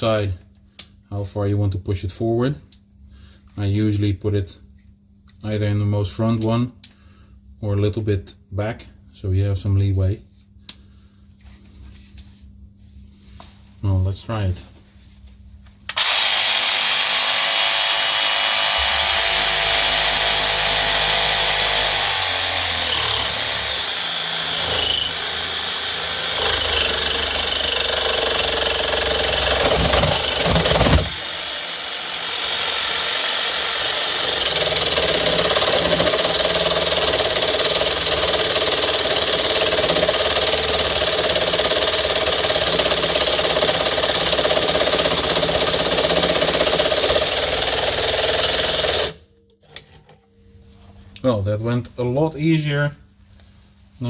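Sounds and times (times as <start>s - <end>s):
jigsaw cutting steel: 15.9s - 49.2s.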